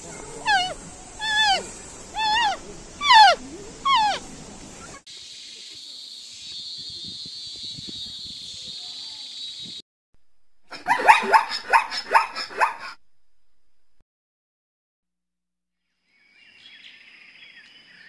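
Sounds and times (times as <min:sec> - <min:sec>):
animal calling: 0:00.0 - 0:05.0, 0:10.7 - 0:13.0
steady hiss: 0:00.0 - 0:09.8.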